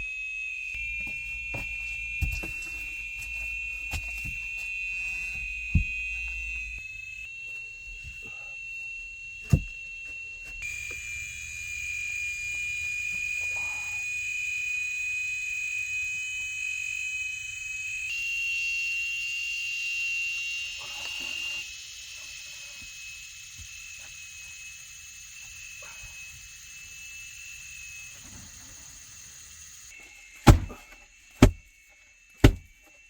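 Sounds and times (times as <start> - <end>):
insects droning chorus: 0.0 - 33.0
sharp knocks: 30.4 - 30.8, 31.4 - 31.6, 32.4 - 32.7.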